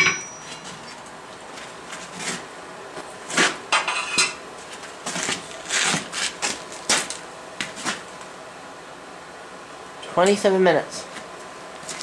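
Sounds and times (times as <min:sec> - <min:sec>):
hammer striking anvil: 0:00.0 - 0:00.6.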